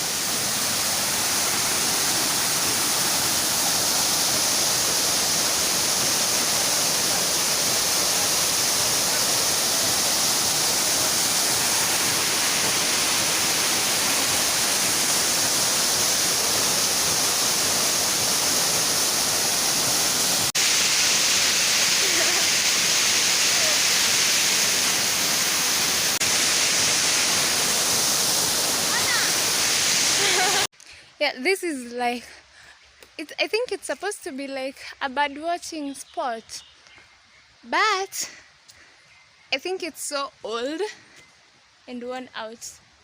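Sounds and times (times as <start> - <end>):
waterfall rushing: 0.0 - 30.7.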